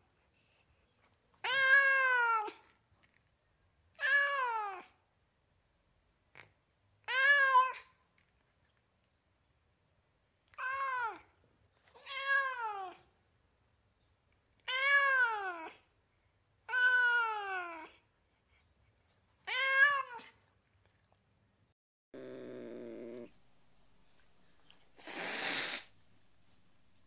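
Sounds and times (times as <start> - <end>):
cat meowing: 10.5 - 11.3, 12.0 - 13.0, 14.6 - 15.8, 16.7 - 18.0, 19.4 - 20.4.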